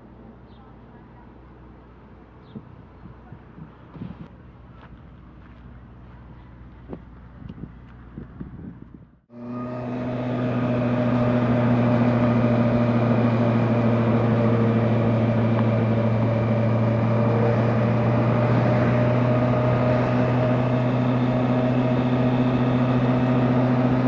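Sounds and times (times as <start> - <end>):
motorcycle engine cruising: 6.3 - 24.0.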